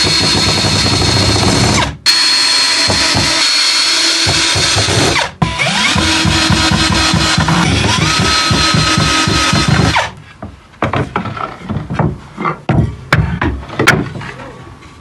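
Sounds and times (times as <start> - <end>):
wood and tool knocks: 5.9 - 14.4.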